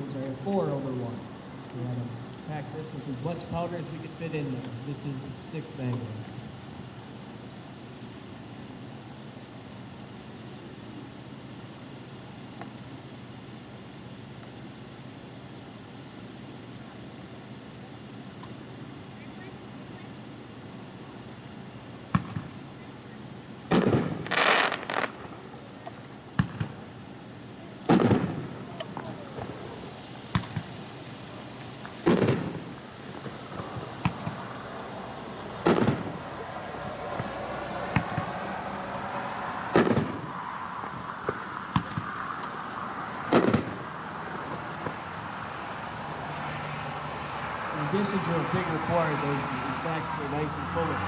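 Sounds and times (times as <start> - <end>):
firework bangs with echo: 22.0 - 46.0
small firework pops: 22.1 - 23.1, 23.7 - 27.0, 27.8 - 34.6, 35.6 - 38.6, 39.7 - 45.1.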